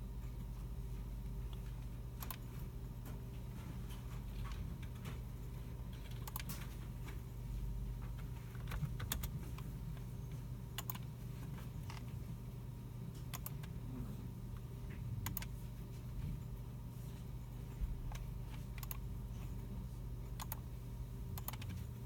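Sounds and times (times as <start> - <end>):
steady low hum: 0.0 - 22.0
keyboard typing: 5.9 - 6.8, 8.5 - 10.0, 10.8 - 11.1, 13.2 - 13.8, 15.2 - 15.6, 18.1 - 19.1, 20.4 - 20.6, 21.4 - 21.9.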